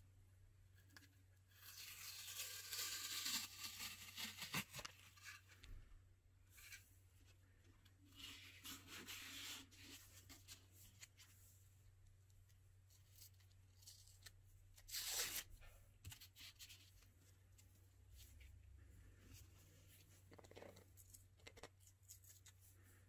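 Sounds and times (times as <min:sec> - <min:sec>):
paper rustling and rubbing: 0:01.6 - 0:05.5.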